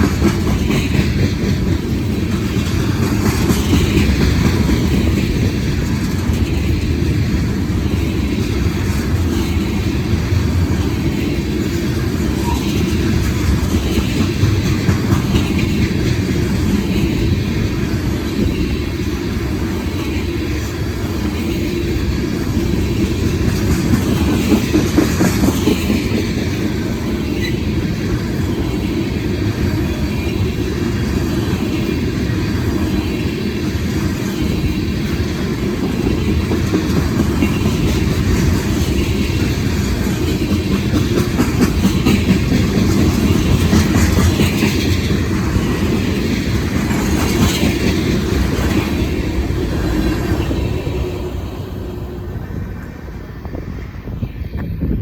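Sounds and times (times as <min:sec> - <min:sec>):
train wheels clickety-clack: 0:00.0 - 0:55.0.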